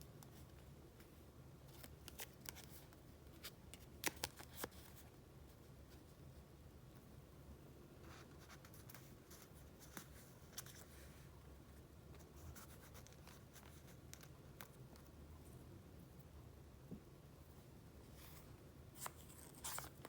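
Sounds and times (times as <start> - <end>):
paper and plastic sleeves rustling: 18.1 - 20.0.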